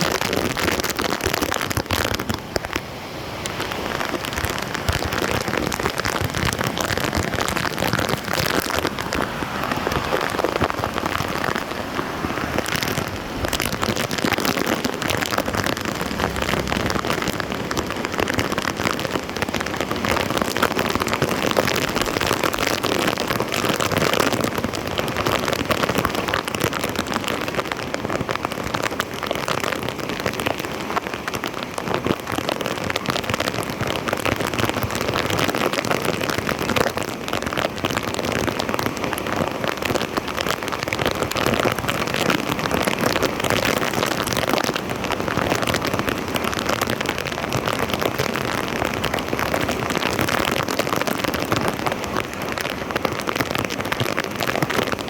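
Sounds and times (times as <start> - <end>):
water splashing and pattering: 0.0 - 55.0.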